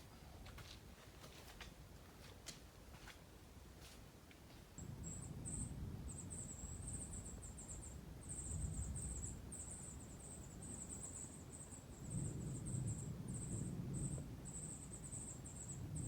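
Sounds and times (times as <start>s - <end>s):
insects chirping: 5.4s - 16.0s.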